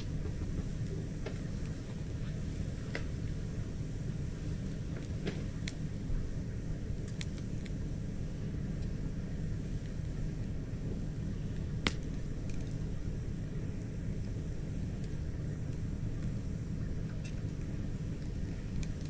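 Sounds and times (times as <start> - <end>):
campfire crackling and popping: 0.0 - 19.0
steady low rumble: 0.0 - 19.0.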